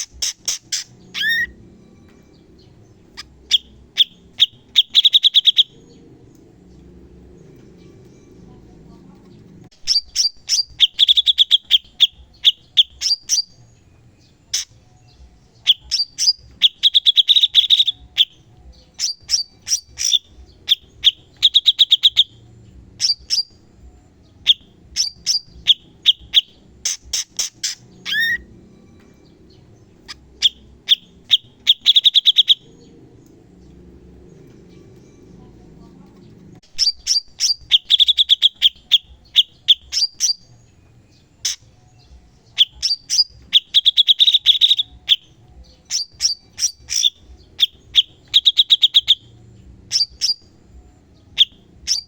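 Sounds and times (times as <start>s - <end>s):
songbird chattering notes: 0.0s - 1.6s, 2.6s - 6.9s, 7.5s - 13.6s, 14.4s - 28.5s, 29.2s - 52.0s.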